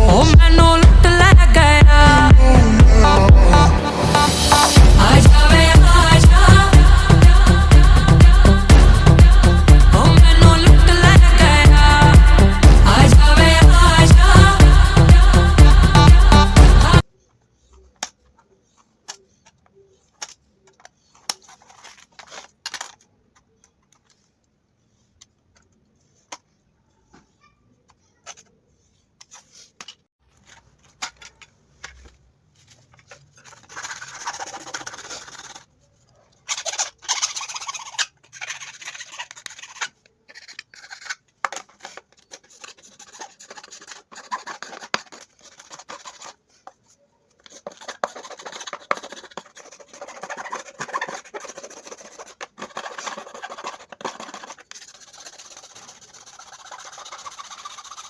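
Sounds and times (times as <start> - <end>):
scraping and rasping plastic: 17.2 - 24.3, 28.0 - 58.0.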